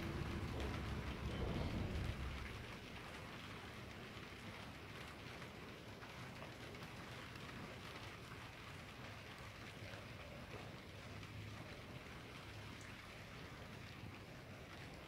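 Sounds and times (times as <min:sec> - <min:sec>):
low rumble: 0:00.0 - 0:03.0
heavy rain falling: 0:00.0 - 0:15.0.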